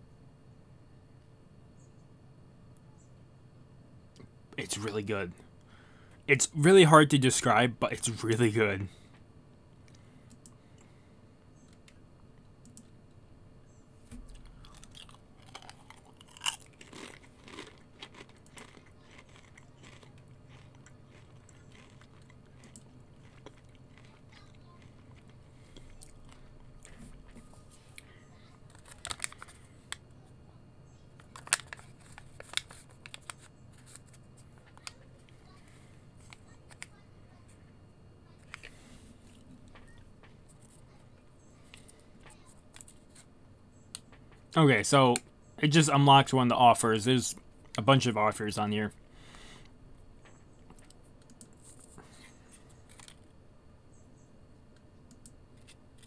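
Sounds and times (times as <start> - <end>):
crunching potato chips: 14.2 - 27.3, 28.6 - 29.9, 31.2 - 35.0.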